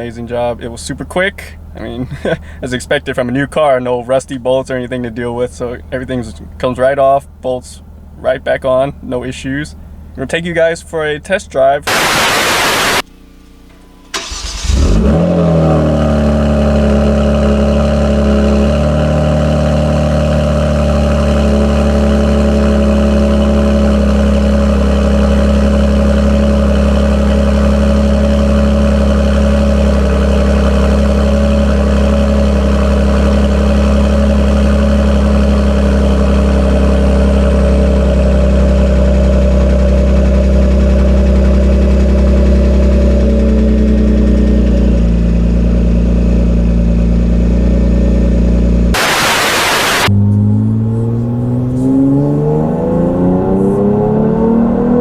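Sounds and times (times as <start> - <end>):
engine idling loudly: 11.9 - 13.0, 14.1 - 50.1
engine cranking and starting: 12.8 - 16.0.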